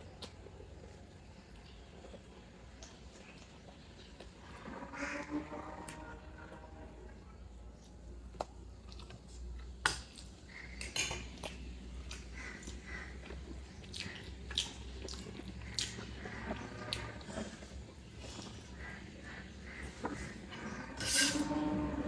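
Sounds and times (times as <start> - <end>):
person chewing food: 0.0 - 4.6, 7.8 - 20.7.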